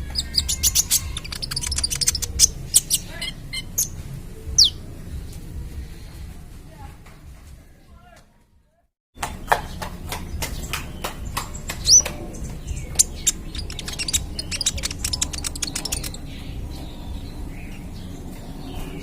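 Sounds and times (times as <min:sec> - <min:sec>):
ticking bird notes: 0:00.0 - 0:04.0, 0:11.6 - 0:16.2
sunbird singing sharp notes: 0:00.0 - 0:04.8, 0:11.8 - 0:17.8.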